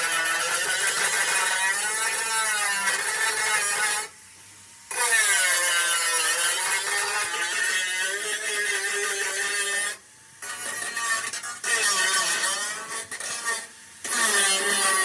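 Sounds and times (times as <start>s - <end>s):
power tool whining: 0.0s - 4.1s, 4.9s - 15.0s.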